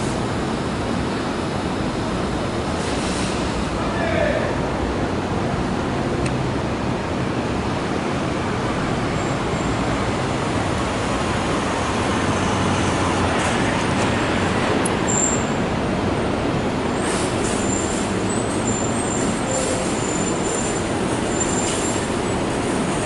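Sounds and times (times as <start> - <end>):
train rumbling: 0.0 - 23.0
wheels squealing on rails: 15.0 - 15.7, 16.9 - 23.0.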